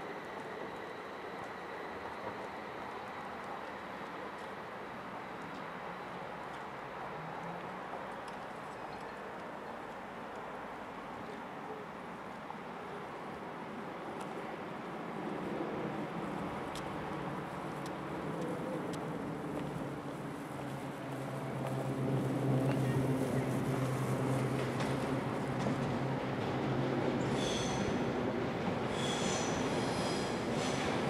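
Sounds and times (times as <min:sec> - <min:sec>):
electric train approaching: 0:00.0 - 0:05.3, 0:15.6 - 0:31.0.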